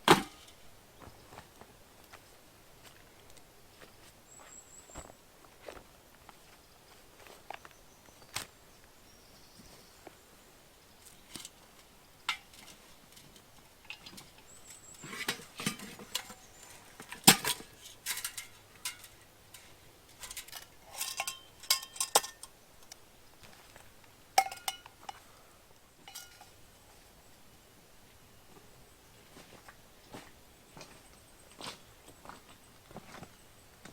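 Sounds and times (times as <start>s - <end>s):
metal pots and utensils clinking: 12.3s - 22.6s, 24.4s - 25.3s, 26.0s - 26.6s.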